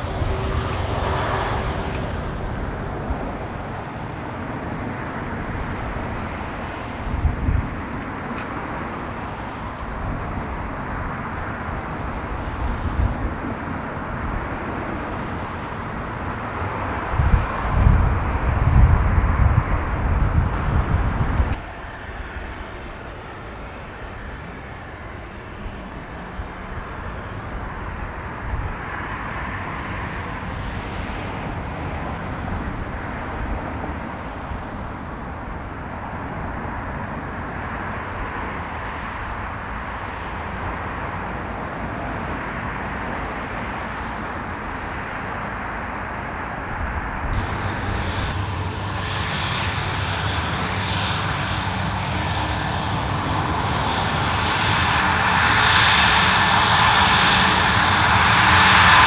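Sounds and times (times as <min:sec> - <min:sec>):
aircraft engine rushing: 0:00.0 - 0:59.0
high whine: 0:45.6 - 0:59.0.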